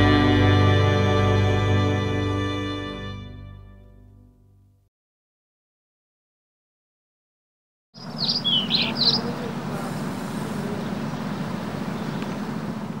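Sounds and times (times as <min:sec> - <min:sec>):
small bird chirping: 0:08.0 - 0:09.5
low outdoor background hum: 0:08.0 - 0:13.0.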